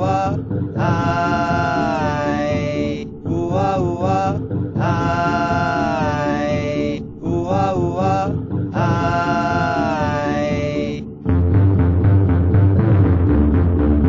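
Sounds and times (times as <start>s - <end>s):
person chanting long notes: 0.0s - 11.0s
low pulsing accompaniment: 0.0s - 14.0s.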